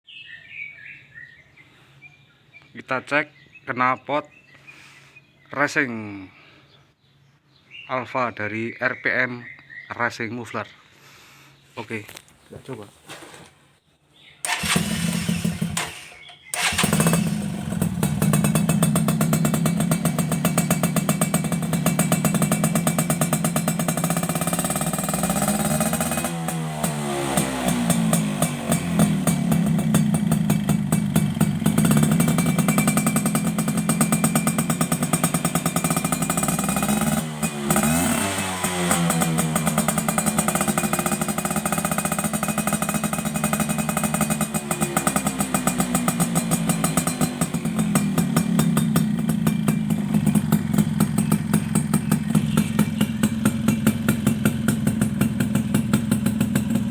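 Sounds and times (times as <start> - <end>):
two-stroke engine idling and revving: 14.4 - 56.9.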